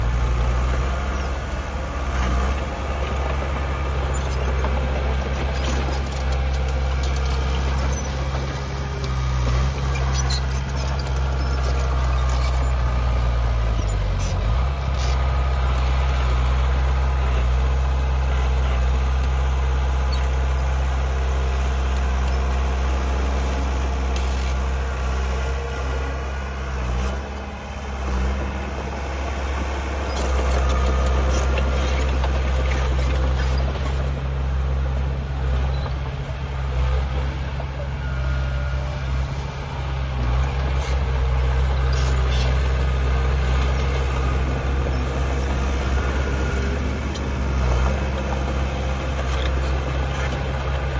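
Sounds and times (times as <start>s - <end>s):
diesel construction machinery running: 0.0s - 50.9s.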